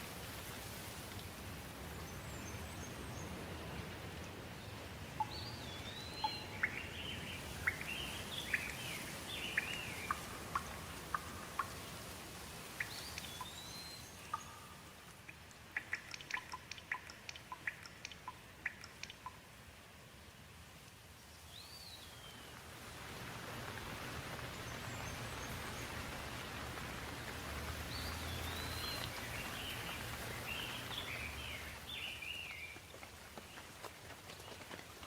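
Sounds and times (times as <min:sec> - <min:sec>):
light rain hissing: 0:00.0 - 0:35.0
bird chirping: 0:04.6 - 0:11.9, 0:12.8 - 0:19.4, 0:27.9 - 0:32.8
sharp drips: 0:05.0 - 0:19.6, 0:22.6 - 0:33.9.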